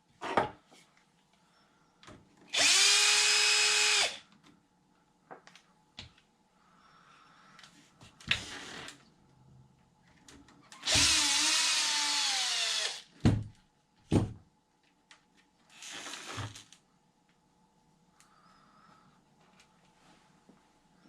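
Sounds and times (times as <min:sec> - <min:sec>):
power drill whining: 0:02.5 - 0:04.2, 0:10.8 - 0:13.1.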